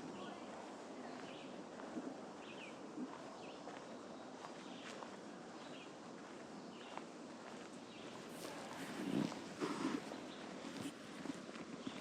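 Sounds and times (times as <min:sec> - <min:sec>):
footsteps on a trail: 0:00.0 - 0:12.0
steady outdoor hiss: 0:00.0 - 0:12.0.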